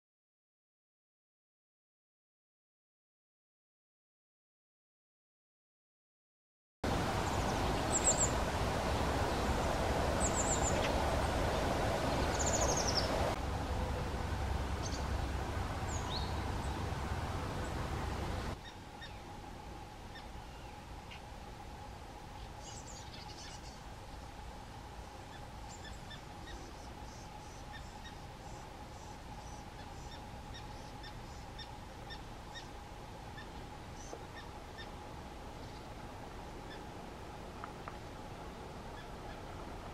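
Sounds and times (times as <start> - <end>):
background noise: 6.8 - 39.9
faint steady hum: 6.8 - 39.9
blue tits calling: 6.9 - 21.3, 22.4 - 23.9, 25.0 - 36.0, 36.6 - 36.9.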